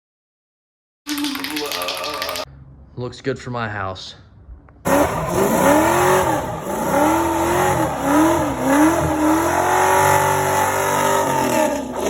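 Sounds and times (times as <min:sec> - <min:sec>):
car engine revving: 0:04.8 - 0:12.0.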